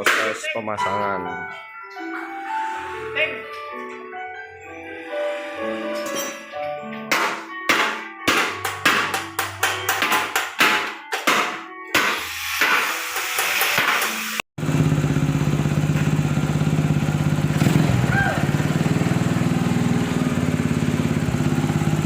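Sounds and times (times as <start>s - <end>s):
music with sharp percussive beats: 0.0s - 1.0s, 5.8s - 14.4s
motorcycle engine idling: 14.6s - 22.0s.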